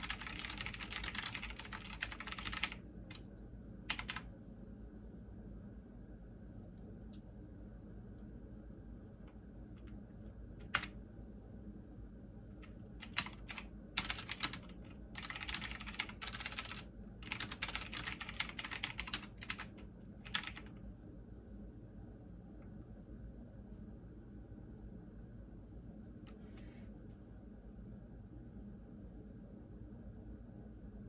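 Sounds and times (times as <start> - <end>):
keyboard typing: 0.0 - 3.2, 3.9 - 4.3, 10.6 - 11.0, 13.0 - 20.7
steady low hum: 0.0 - 31.0.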